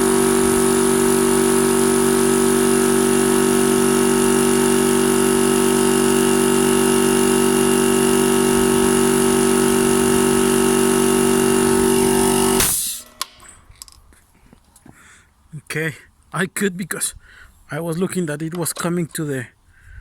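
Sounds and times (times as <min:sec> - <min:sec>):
air compressor running: 0:00.0 - 0:13.5
compressor cut-out tripping: 0:00.0 - 0:13.6.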